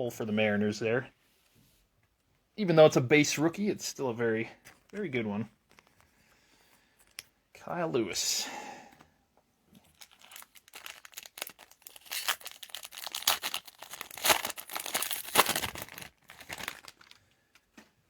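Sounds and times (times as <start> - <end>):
foil wrapper tearing and crinkling: 9.8 - 17.3.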